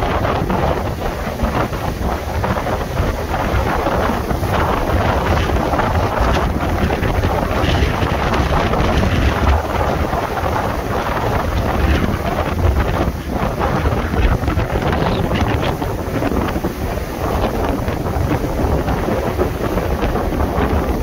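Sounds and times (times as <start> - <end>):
strong wind on microphone: 0.0 - 21.0.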